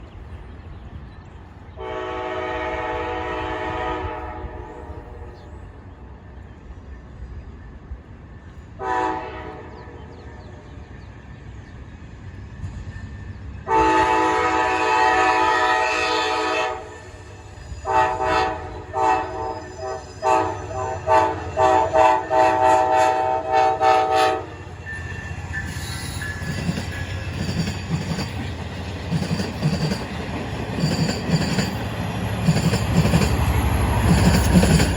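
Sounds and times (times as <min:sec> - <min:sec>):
locomotive air horn: 0:01.8 - 0:05.3, 0:08.8 - 0:09.8, 0:13.7 - 0:17.2, 0:17.8 - 0:24.7
wheel squeal: 0:24.6 - 0:28.0
wheels clicking over rail joints: 0:25.0 - 0:34.9.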